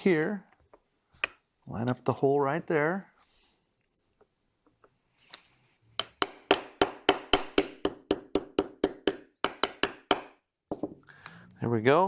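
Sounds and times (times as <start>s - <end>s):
small hammer tapping a pin: 5.9s - 10.9s.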